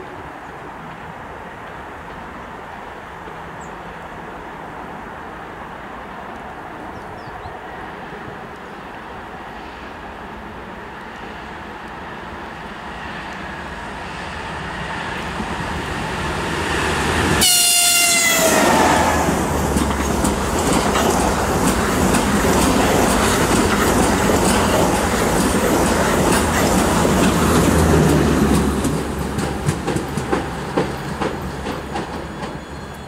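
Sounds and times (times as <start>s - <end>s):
electric locomotive running: 13.2s - 33.0s
locomotive horn blast: 17.4s - 19.4s
train wheels rushing and clattering: 18.1s - 33.0s.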